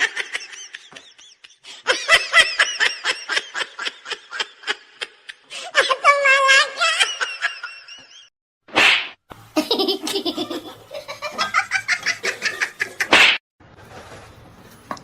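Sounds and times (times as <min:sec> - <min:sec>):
laughter: 0:00.0 - 0:08.3, 0:09.6 - 0:13.1.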